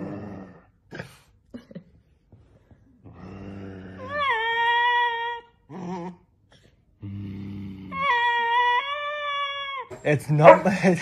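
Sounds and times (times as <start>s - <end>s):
small dog growling and howling: 3.2s - 6.3s, 7.0s - 10.6s.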